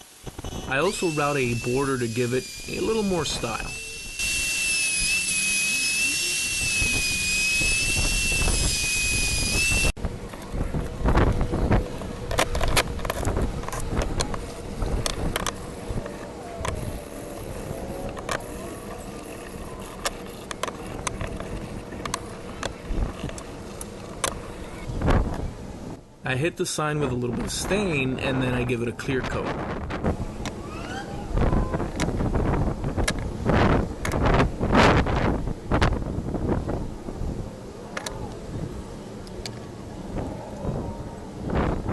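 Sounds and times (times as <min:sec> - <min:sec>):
wood router high-pitched whine: 0:00.0 - 0:10.0.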